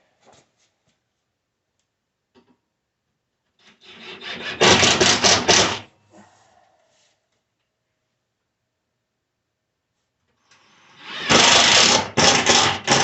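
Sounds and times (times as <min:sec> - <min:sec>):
power driver grinding screw into wood: 0:03.7 - 0:05.8, 0:10.6 - 0:13.0.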